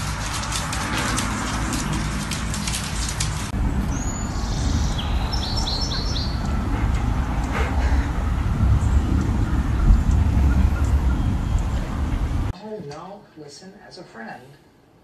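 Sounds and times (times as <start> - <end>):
dense patter of sharp clicks: 0.0 - 3.6
birds chirping: 0.0 - 12.5
low rumble: 0.0 - 12.5.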